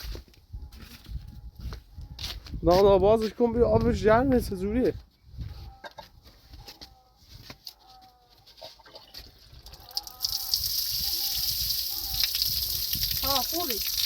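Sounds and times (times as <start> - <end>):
chickens clucking: 5.4 - 7.1, 7.8 - 9.3.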